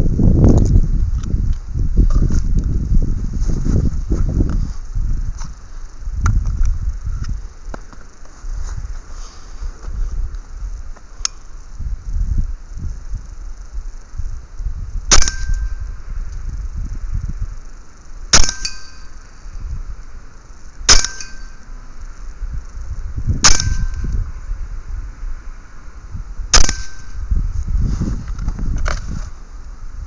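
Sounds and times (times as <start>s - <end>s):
air rifle shots: 15.1s - 15.8s, 18.3s - 19.2s, 20.9s - 21.6s, 23.4s - 24.1s, 26.5s - 27.2s
brief metallic ring: 20.9s - 21.6s.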